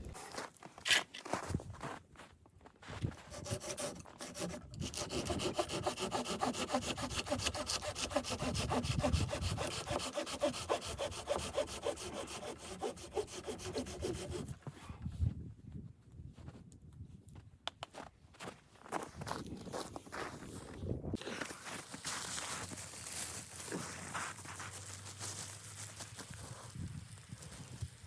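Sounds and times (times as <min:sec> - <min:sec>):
hand saw cutting wood: 0:03.3 - 0:14.6.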